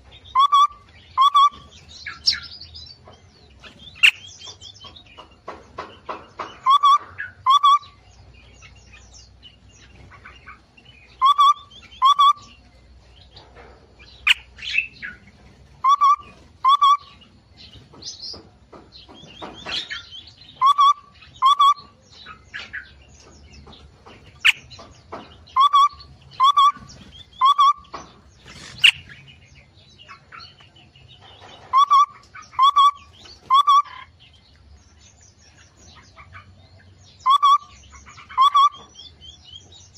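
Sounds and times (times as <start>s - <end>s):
high bird chirps and trills: 0.0s - 39.9s
low whistled bird notes: 0.3s - 1.6s, 37.2s - 37.8s.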